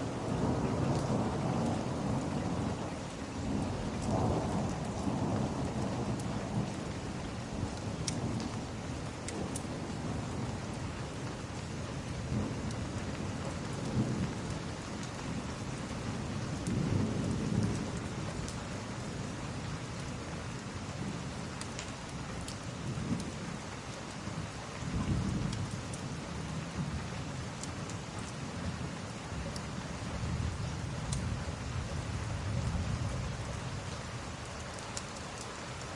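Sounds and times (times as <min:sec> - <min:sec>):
steady rain: 0:00.0 - 0:35.9
thunder rumbling: 0:03.5 - 0:10.8
log fire crackling: 0:34.4 - 0:35.9.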